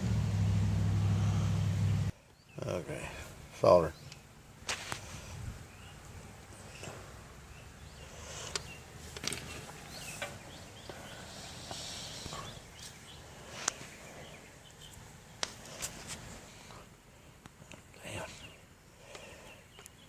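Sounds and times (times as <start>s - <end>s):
faint background hiss: 0.0s - 20.0s
soft clicks and rustles of handling: 8.4s - 10.4s.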